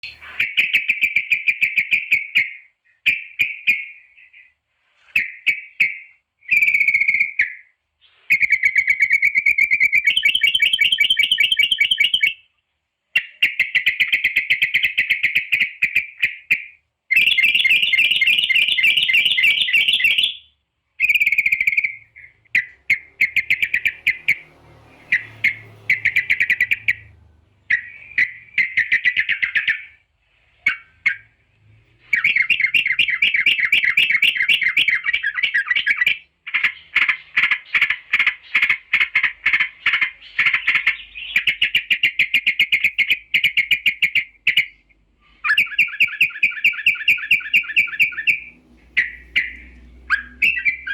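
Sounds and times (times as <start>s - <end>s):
short bird calls: 0.0s - 12.5s, 13.2s - 50.9s
bulbuls bubbling chatter: 47.6s - 50.9s.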